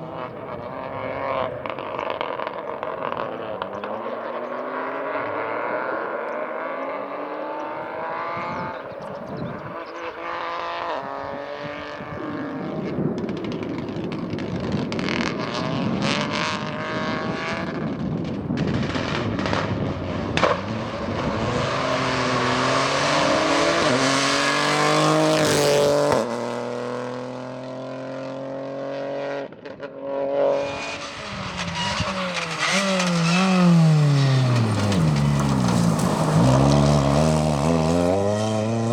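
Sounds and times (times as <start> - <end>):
rally car engines revving: 0.0 - 38.9
car passing by: 18.8 - 27.3, 30.4 - 38.9.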